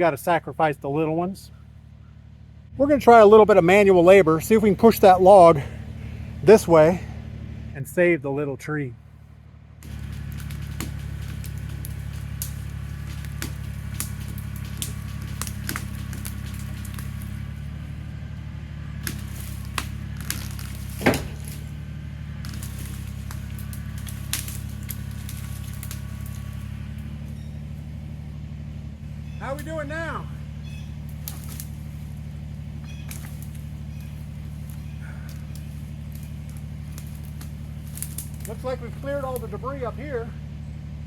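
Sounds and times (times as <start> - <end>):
tractor diesel engine idling: 0.0 - 41.0
wood snapping and knocking: 9.8 - 28.2, 30.9 - 39.5.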